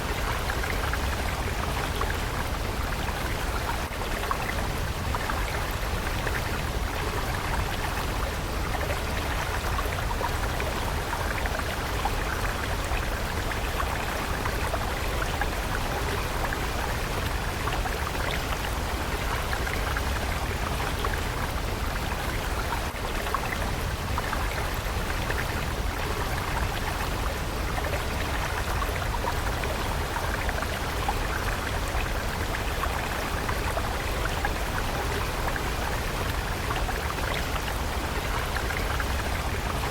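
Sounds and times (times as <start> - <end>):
low rumble of water: 0.0 - 39.9
stream babbling trickle: 0.0 - 39.9.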